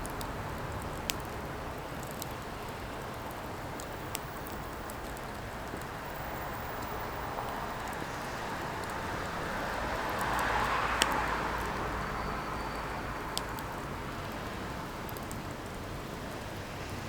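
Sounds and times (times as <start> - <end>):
fire crackling pops: 0.1 - 11.7
firewood burning hiss: 0.2 - 12.2.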